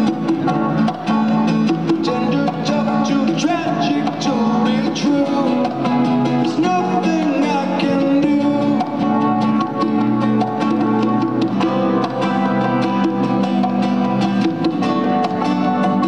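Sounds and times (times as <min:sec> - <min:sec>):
live band playing: 0:00.0 - 0:16.0
strummed acoustic guitar: 0:00.0 - 0:16.0.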